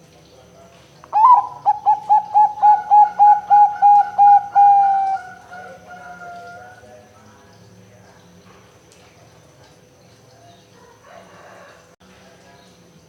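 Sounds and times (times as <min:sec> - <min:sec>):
dove cooing: 0:01.1 - 0:06.8.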